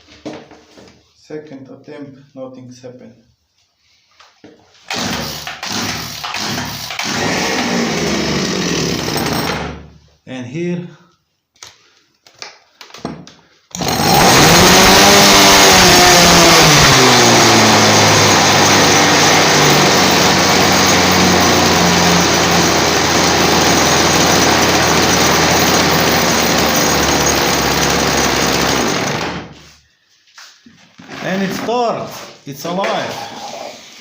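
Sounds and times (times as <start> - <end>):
chainsaw pull-started and running: 4.8 - 9.8, 13.7 - 29.7.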